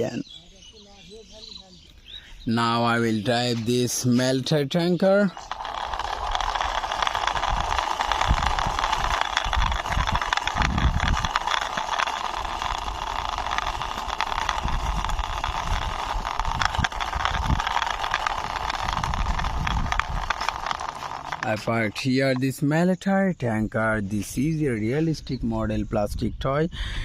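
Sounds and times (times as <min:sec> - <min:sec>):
toy truck rolling and rattling: 0:02.6 - 0:22.8.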